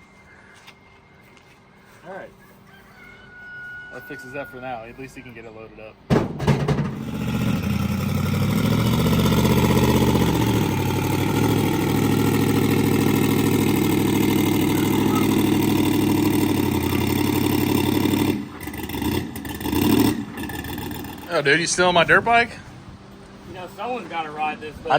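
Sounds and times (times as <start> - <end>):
sharp engine knock: 6.1 - 7.6
vehicle engine running: 6.4 - 24.5.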